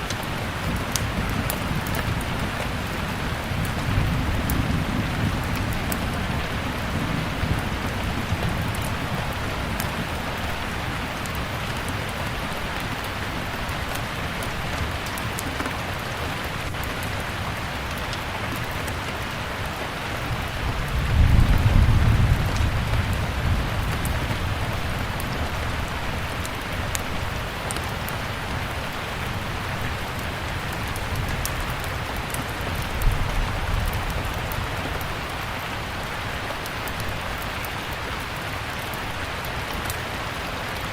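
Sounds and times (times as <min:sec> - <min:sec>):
steady rain: 0:00.0 - 0:40.9
wood fire crackling: 0:00.0 - 0:40.9
thunder rumble: 0:00.4 - 0:12.6, 0:20.3 - 0:36.1.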